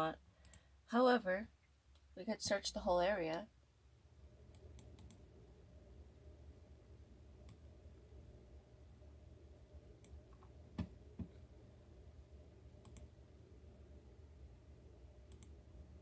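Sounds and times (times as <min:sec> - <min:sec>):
low room hum: 0:00.0 - 0:16.0
computer mouse clicks: 0:00.4 - 0:00.6, 0:04.5 - 0:05.2, 0:07.4 - 0:07.7, 0:12.8 - 0:13.1, 0:15.3 - 0:15.6.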